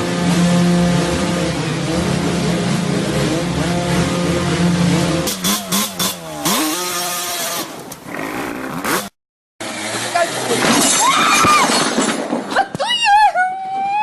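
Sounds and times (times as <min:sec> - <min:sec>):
motorcycle engine revving: 0:00.0 - 0:10.6.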